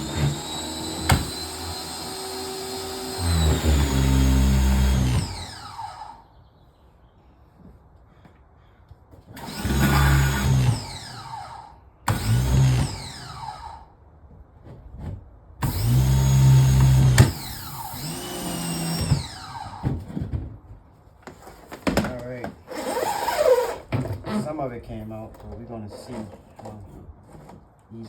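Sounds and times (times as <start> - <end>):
motor winding down whine: 0.0 - 6.2, 9.4 - 13.9, 15.6 - 19.8.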